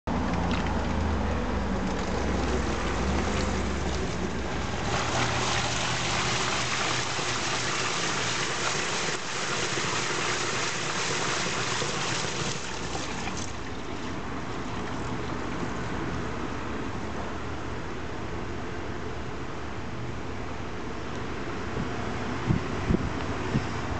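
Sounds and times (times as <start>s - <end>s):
low motor hum: 0.1s - 9.6s
washing machine water splashing: 1.8s - 16.1s.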